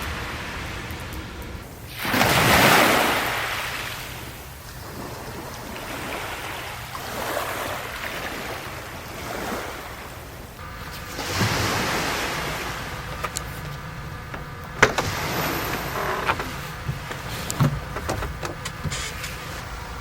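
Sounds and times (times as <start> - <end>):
sea waves breaking on shore: 0.0 - 20.0.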